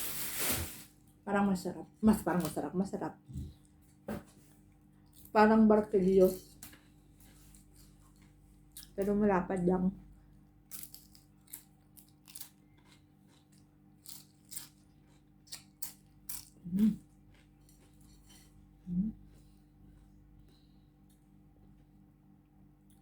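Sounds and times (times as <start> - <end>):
crisp bread crunching: 10.7 - 16.6
person humming: 16.7 - 17.0, 18.8 - 19.2.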